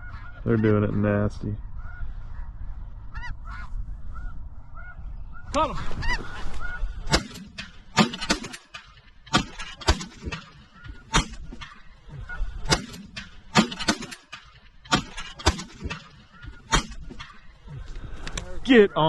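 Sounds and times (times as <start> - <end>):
geese honking: 0.0 - 19.0.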